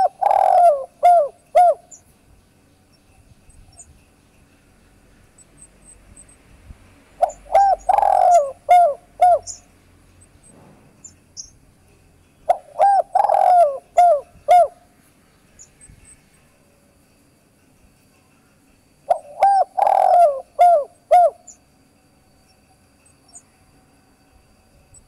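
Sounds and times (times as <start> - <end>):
dove cooing: 0.0 - 2.0, 7.2 - 9.6, 12.5 - 14.9, 19.1 - 21.6
faint high chirps: 0.0 - 6.5, 7.2 - 25.0.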